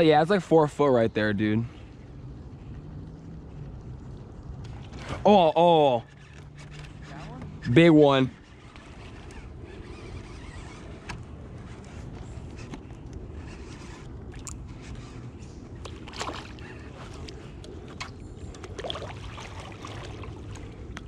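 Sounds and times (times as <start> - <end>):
steady low rumble: 0.0 - 7.8
water splashing at a kayak: 15.8 - 21.0.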